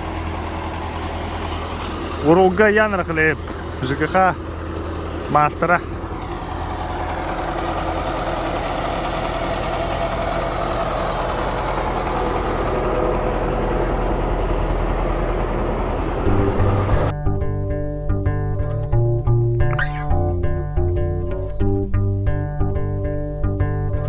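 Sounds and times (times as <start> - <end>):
engine running: 0.0 - 24.0
music with plucked bass line: 16.2 - 24.0.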